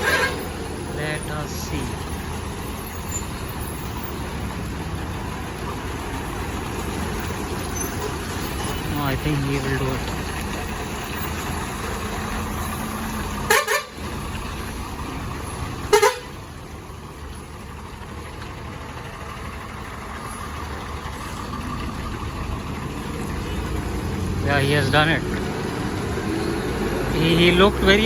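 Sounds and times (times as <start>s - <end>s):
vehicle horn toots: 0.0s - 0.5s, 13.4s - 14.0s, 15.8s - 16.4s
traffic engine and road noise: 0.0s - 28.0s.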